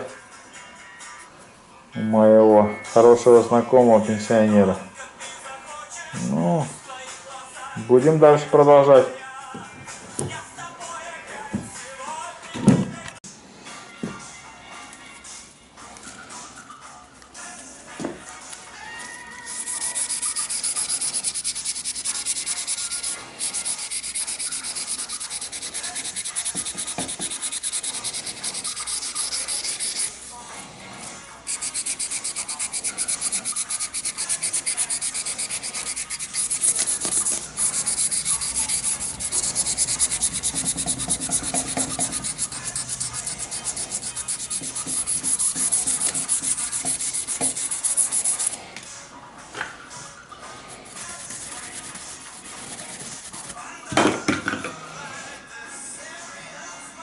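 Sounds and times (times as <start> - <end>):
knife being sanded: 19.5 - 30.4, 31.5 - 48.6, 50.7 - 53.6.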